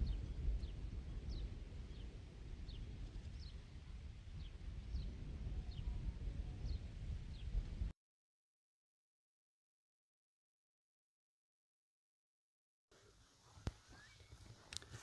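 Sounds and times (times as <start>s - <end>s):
steady low rumble: 0.0s - 7.9s
bird chirping: 13.7s - 14.8s.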